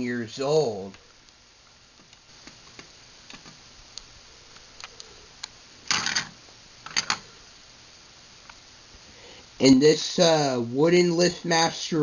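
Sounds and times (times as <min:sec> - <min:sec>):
plastic objects clattering: 0:05.9 - 0:07.2.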